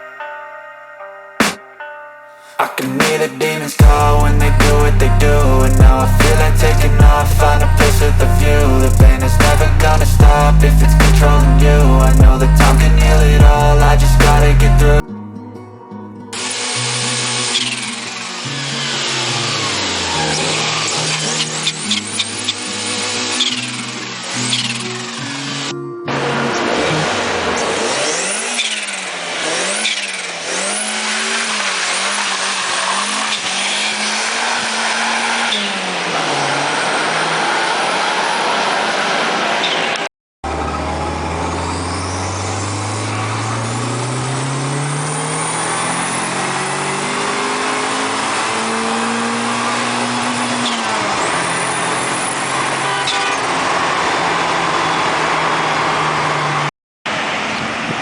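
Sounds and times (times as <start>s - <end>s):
turbocharged car engine accelerating: 3.8s - 15.0s, 16.4s - 58.0s
turbo whistling: 40.6s - 47.4s.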